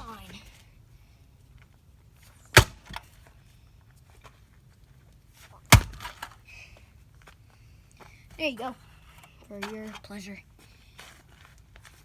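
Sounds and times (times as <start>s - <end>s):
sledgehammer hitting metal cans: 2.5s - 3.1s, 5.7s - 6.4s.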